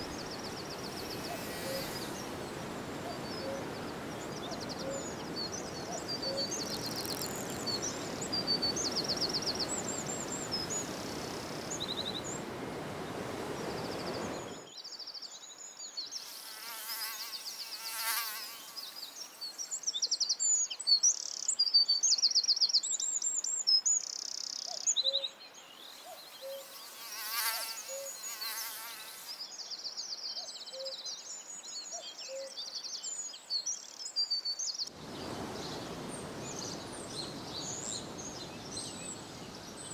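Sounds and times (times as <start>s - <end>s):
steady rushing noise: 0.0s - 14.6s
insect buzzing past: 0.0s - 14.7s, 16.1s - 19.8s, 25.8s - 29.6s, 34.9s - 39.9s
songbirds singing: 0.0s - 16.3s, 24.0s - 39.9s.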